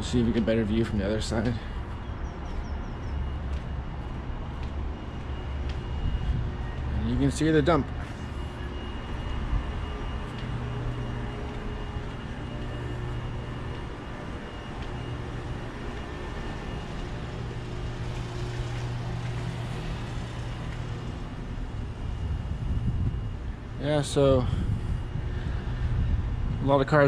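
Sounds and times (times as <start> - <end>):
distant traffic hum: 0.0 - 27.0
faint high whine: 0.0 - 27.0.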